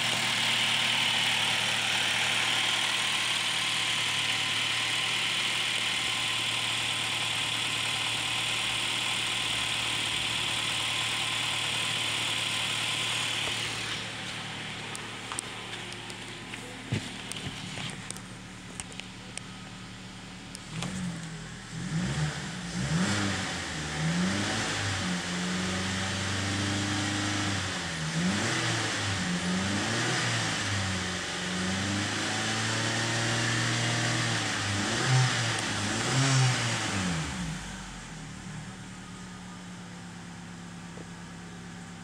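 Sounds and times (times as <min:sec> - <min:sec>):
car engine revving: 0:00.0 - 0:19.4, 0:20.0 - 0:38.5
car engine idling: 0:00.0 - 0:24.2, 0:35.5 - 0:42.0.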